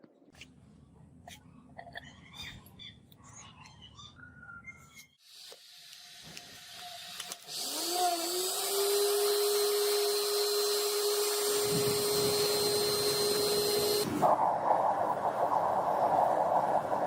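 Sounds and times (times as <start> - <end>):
electric power tool whine: 5.2 - 14.1.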